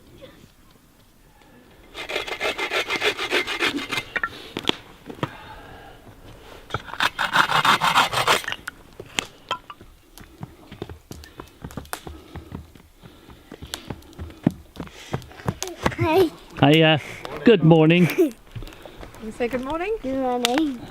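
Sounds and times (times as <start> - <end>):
fast rasping strokes: 1.9 - 4.2, 6.8 - 8.6.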